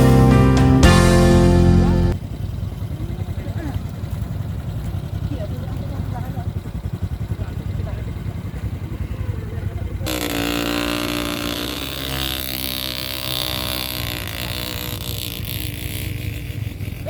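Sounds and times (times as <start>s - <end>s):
motorcycle engine revving hard: 0.0s - 17.0s.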